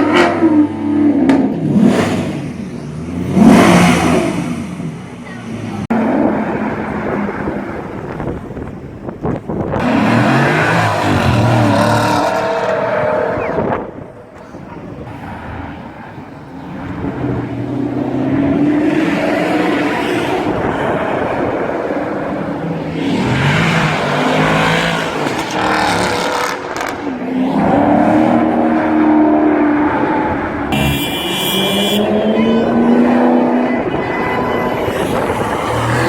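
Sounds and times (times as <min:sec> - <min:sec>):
car engines revving hard: 0:00.0 - 0:36.0.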